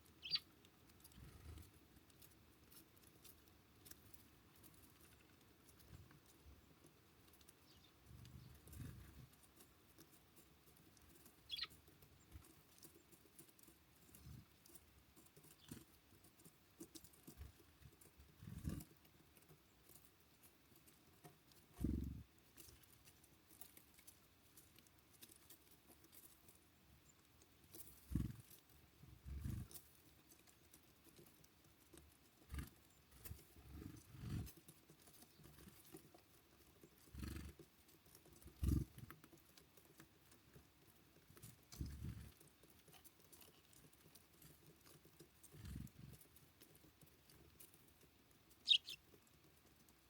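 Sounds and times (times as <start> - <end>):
bird chirp: 0.0 - 0.5, 7.6 - 8.7, 11.4 - 12.3, 48.6 - 49.0.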